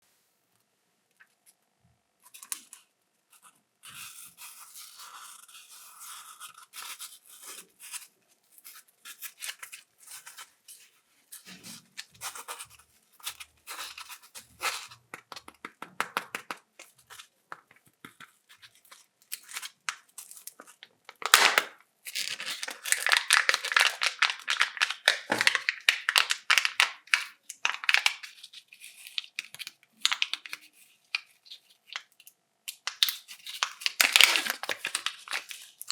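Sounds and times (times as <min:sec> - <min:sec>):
wrappers crinkling: 0:19.3 - 0:32.1, 0:32.8 - 0:35.9.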